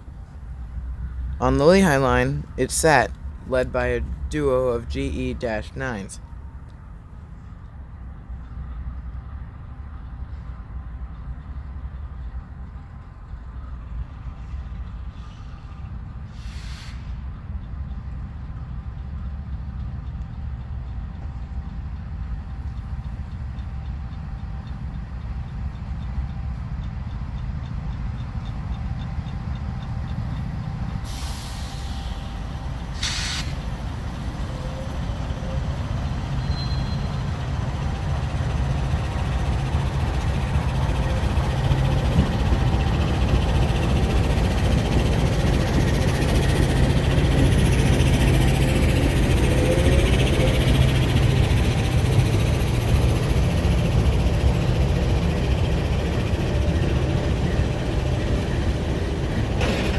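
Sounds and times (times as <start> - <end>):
air hiss: 16.3 - 17.2, 31.0 - 32.3, 32.9 - 33.7
air brake burst: 16.3 - 17.3, 31.0 - 32.3, 33.0 - 33.6
locomotive engine rumble: 17.0 - 59.9.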